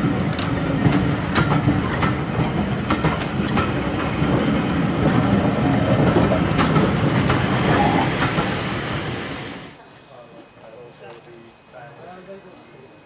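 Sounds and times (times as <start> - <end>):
wheels clicking over rail joints: 0.0 - 9.1
train wheels rumbling on rails: 0.0 - 9.8.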